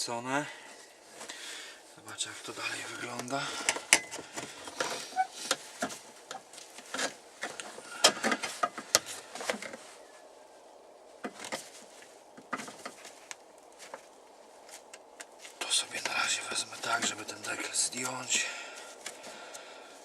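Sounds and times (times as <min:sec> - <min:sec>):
clicks and knocks of parts handled: 0:03.2 - 0:09.8.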